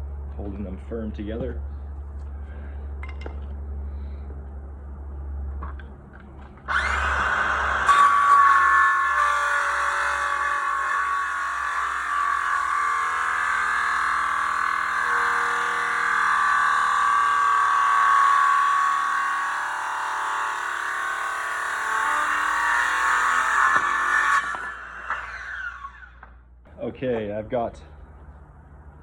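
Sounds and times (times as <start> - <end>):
circular saw cutting wood: 6.7 - 26.3.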